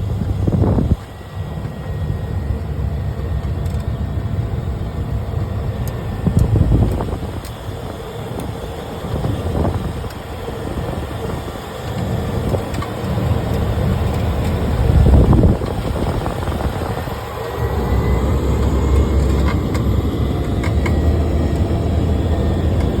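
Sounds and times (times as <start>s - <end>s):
aircraft landing rumble: 0.0s - 23.0s.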